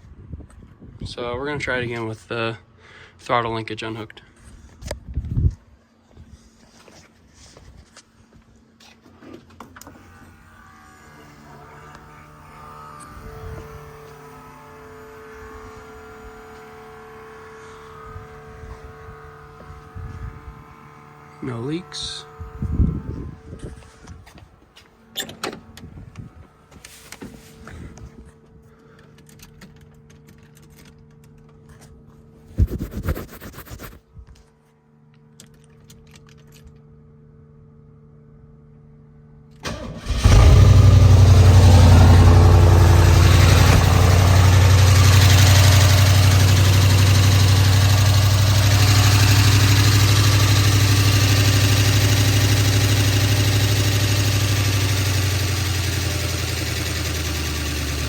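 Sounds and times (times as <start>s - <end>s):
car engine running: 39.7s - 58.0s.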